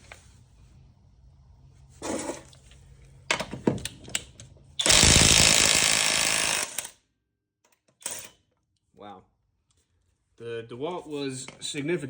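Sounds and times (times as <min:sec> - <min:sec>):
impact wrench hammering: 0:04.8 - 0:06.9.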